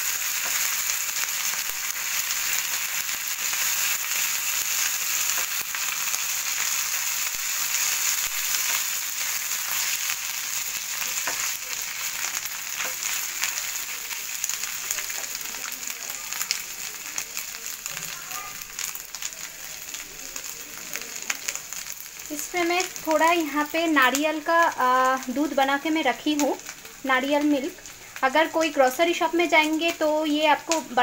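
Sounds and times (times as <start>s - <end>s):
onion sizzling in oil: 0.0s - 31.0s
spatula stirring in pan: 0.1s - 16.8s.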